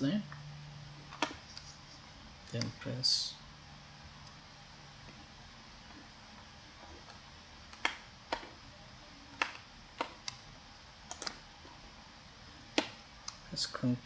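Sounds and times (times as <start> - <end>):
faint room hiss: 0.0 - 14.0
keyboard and mouse clicks: 7.0 - 8.6, 9.3 - 10.4, 11.1 - 11.4.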